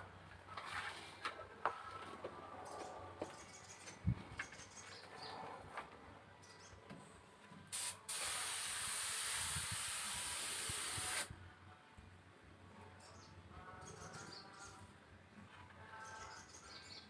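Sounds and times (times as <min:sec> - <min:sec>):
spray paint hissing: 0:07.7 - 0:11.3.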